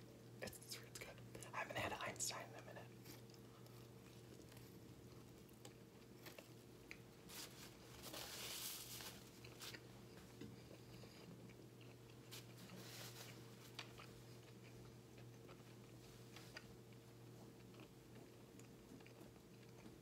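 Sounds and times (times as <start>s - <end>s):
steady low hum: 0.0s - 20.0s
person chewing: 2.9s - 7.8s, 9.1s - 20.0s
napkin rustle: 7.3s - 9.8s, 12.3s - 13.8s.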